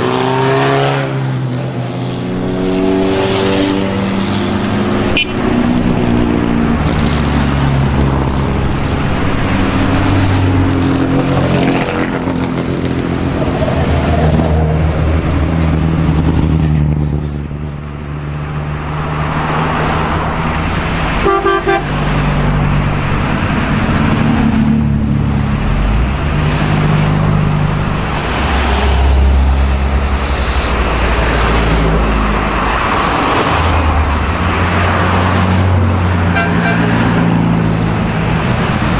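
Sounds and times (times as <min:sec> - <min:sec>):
race car engines passing by: 0:00.0 - 0:38.9
car horn toot: 0:05.1 - 0:05.5, 0:21.2 - 0:22.0, 0:36.3 - 0:37.0.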